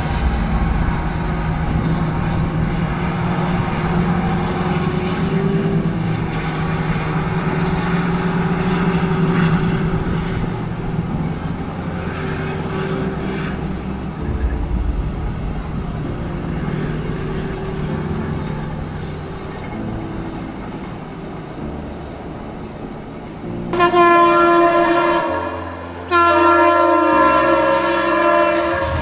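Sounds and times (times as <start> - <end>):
distant train engine drone: 0.0 - 29.0
outdoor noise: 0.0 - 29.0.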